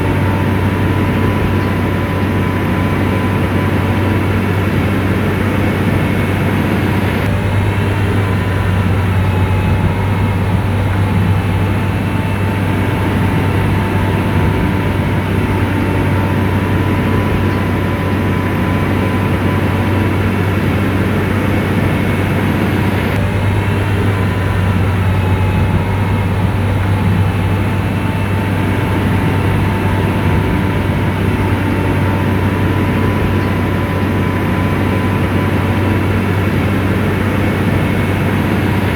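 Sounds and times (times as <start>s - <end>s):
bulldozer diesel engine droning: 0.0s - 38.9s
thin steady whine: 0.0s - 38.9s.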